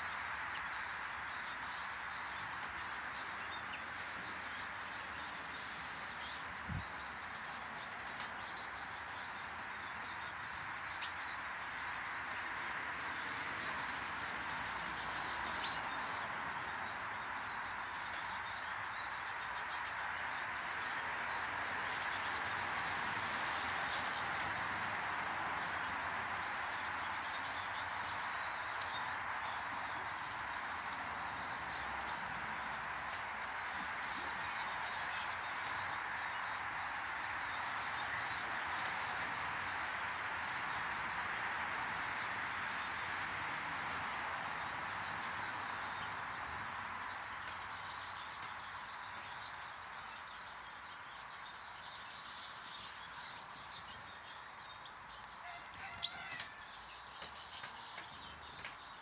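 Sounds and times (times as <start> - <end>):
small birds chirping: 0.0 - 59.0
steady outdoor hiss: 0.0 - 59.0.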